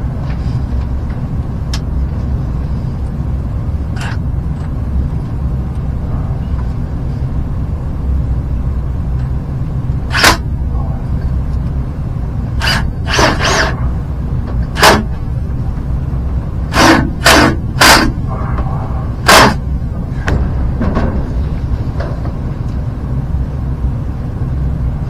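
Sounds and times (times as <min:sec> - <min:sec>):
low rumble: 0:00.0 - 0:25.0
sharp knocks: 0:14.5 - 0:15.2, 0:16.7 - 0:18.2, 0:19.2 - 0:19.6.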